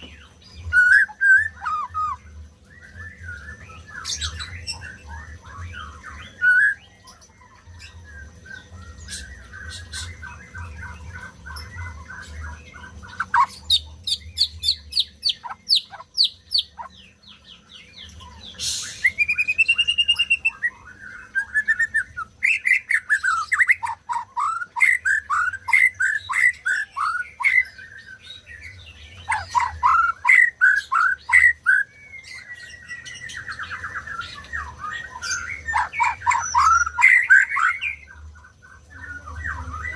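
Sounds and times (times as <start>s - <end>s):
songbird singing varied song: 0.0s - 39.9s.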